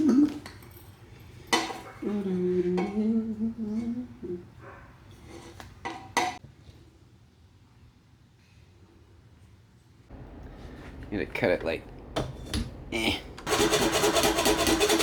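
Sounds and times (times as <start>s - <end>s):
man humming: 0.0s - 0.4s, 12.9s - 13.4s.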